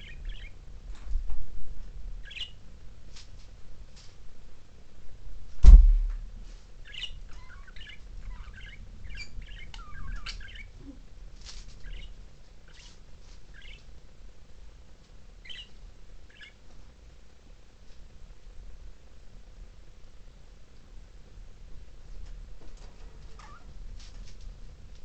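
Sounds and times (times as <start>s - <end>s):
loud thump: 5.6s - 6.3s
budgerigars chirping and warbling: 6.9s - 10.7s, 11.8s - 12.1s, 12.7s - 13.0s, 13.6s - 13.8s, 15.5s - 15.7s.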